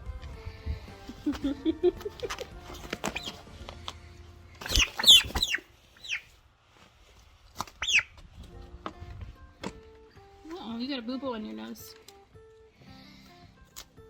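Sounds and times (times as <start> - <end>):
poultry squawking: 2.7 - 3.5, 4.6 - 6.3, 7.6 - 8.2.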